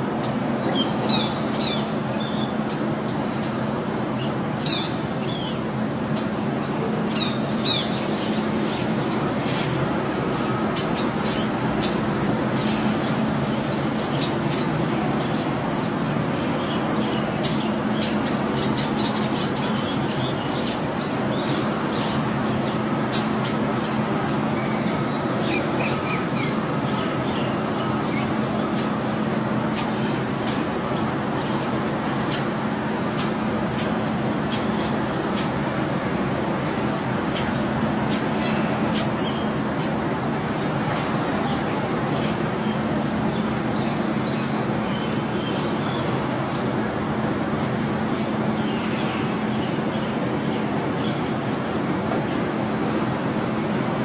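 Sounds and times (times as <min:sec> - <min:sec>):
bird chips and chattering calls: 0:00.2 - 0:03.6, 0:04.2 - 0:14.8, 0:16.7 - 0:26.6, 0:31.4 - 0:35.8, 0:36.6 - 0:41.6.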